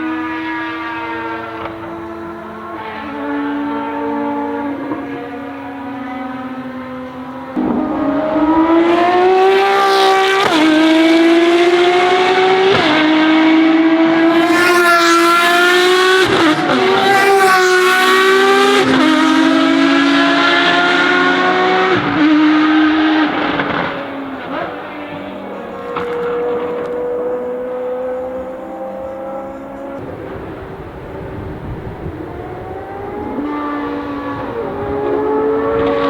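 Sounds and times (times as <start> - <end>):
race car engine revving: 0.0 - 36.0.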